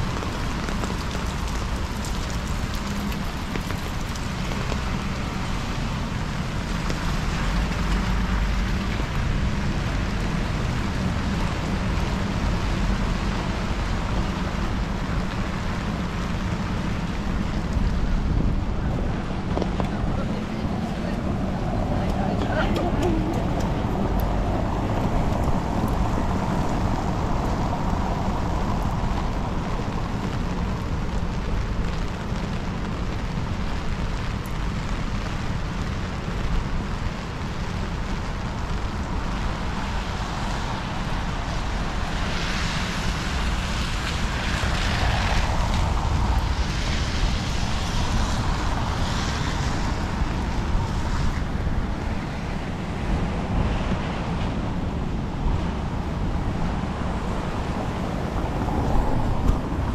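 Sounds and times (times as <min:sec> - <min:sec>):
passing traffic: 0:00.0 - 0:59.9
rain: 0:00.0 - 0:59.9
wind rumble on microphone: 0:00.0 - 0:59.9.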